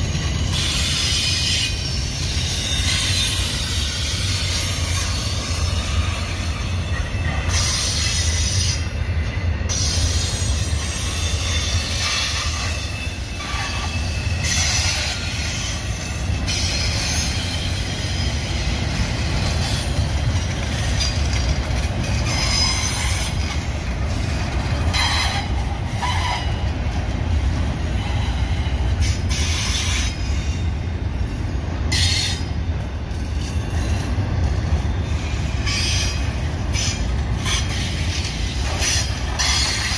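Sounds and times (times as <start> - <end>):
train wheels rumbling on rail: 0.0 - 39.9
high-pitched wheel squeals: 0.3 - 18.7.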